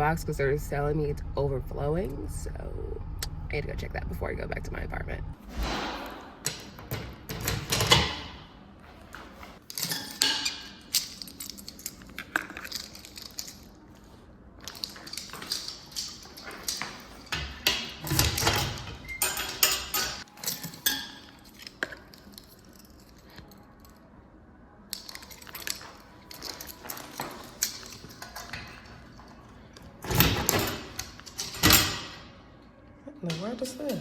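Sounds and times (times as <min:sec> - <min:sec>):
mail handling noise: 0:08.8 - 0:23.3
keys jangling: 0:09.6 - 0:24.0, 0:24.9 - 0:32.3.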